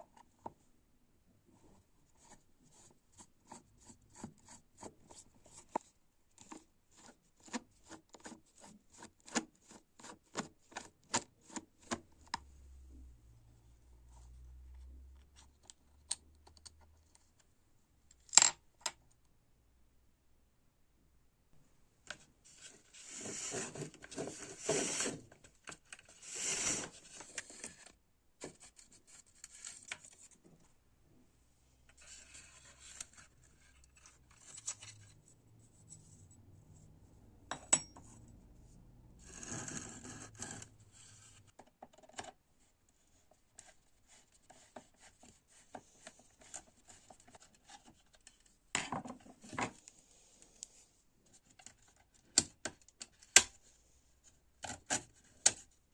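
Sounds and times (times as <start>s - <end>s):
rubbing or scraping small parts: 22.5s - 30.4s, 31.9s - 36.4s.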